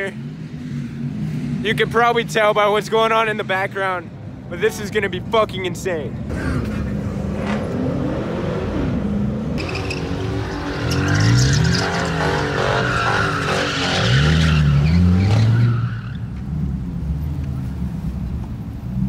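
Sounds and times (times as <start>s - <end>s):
car engine revving: 6.3s - 16.2s
tyres screeching: 9.6s - 16.4s.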